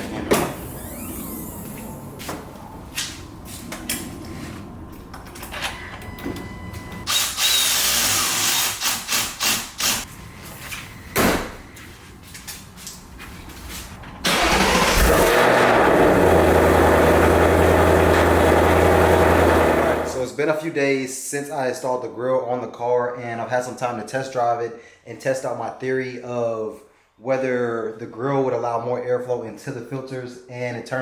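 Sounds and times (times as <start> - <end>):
tool noise bursts: 0.6 - 1.9, 7.1 - 10.0
car engine starting and idling: 14.2 - 20.2.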